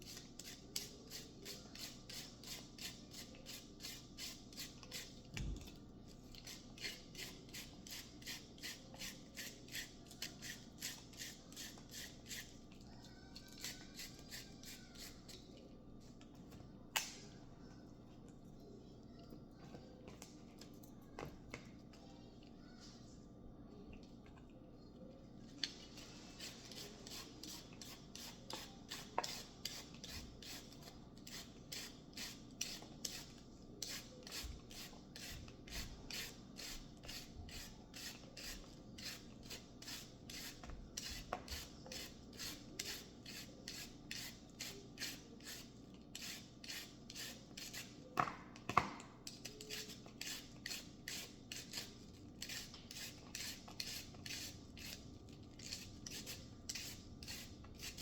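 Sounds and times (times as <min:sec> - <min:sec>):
food being scraped by hand: 0:00.0 - 0:05.2, 0:06.3 - 0:12.7, 0:25.9 - 0:48.0, 0:49.5 - 0:58.0.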